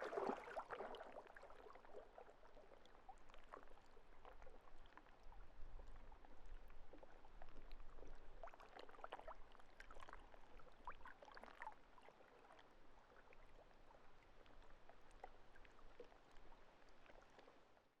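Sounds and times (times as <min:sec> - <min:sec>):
lake water lapping: 0:00.0 - 0:01.1.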